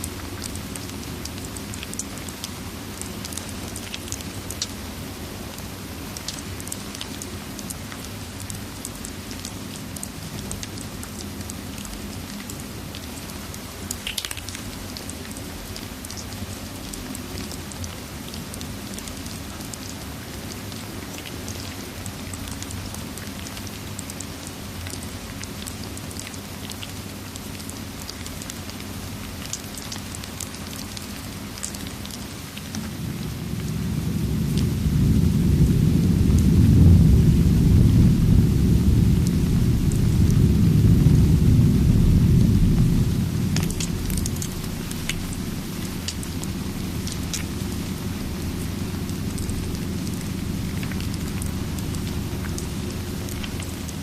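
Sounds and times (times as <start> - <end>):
rain hissing: 31.4 - 54.0
low thunder rumbling: 32.6 - 54.0.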